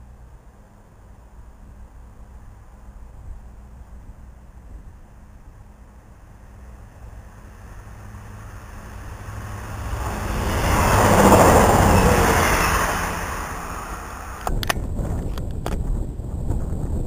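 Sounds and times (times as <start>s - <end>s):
train wheels rushing on rails: 6.4s - 14.8s.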